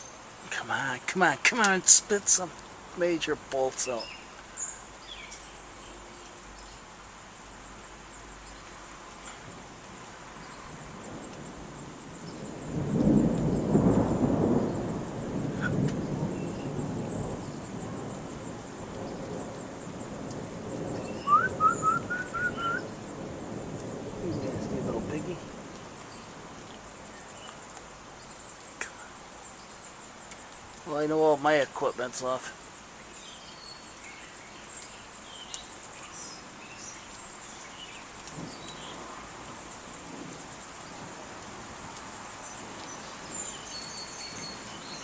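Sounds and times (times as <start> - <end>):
birds chirping: 0.0 - 45.0
high insect drone: 0.0 - 45.0
steady hiss: 0.0 - 45.0
low rumble of thunder: 9.2 - 27.7, 36.1 - 45.0
short whistled notes: 21.2 - 22.8.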